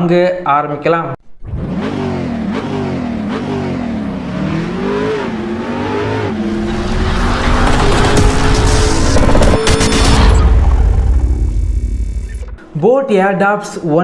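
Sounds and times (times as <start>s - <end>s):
race car engine revving: 1.4s - 12.6s.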